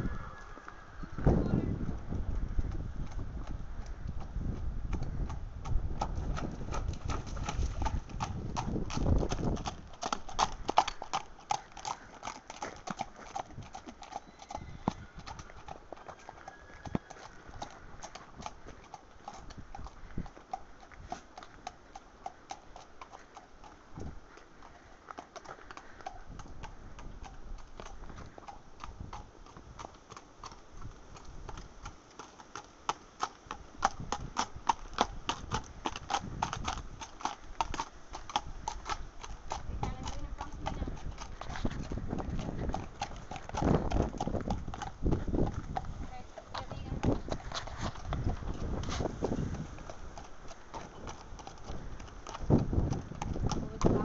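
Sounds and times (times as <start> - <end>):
wind buffeting microphone: 0.0 - 11.9, 16.7 - 21.2, 23.9 - 24.4, 26.2 - 29.9, 33.6 - 54.0
horse hooves clip-clopping: 0.0 - 54.0.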